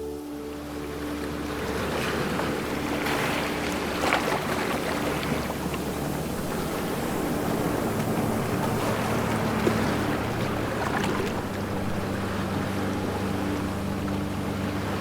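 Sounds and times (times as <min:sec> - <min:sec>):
low steady hum: 0:00.0 - 0:15.0
ocean waves washing: 0:00.0 - 0:15.0.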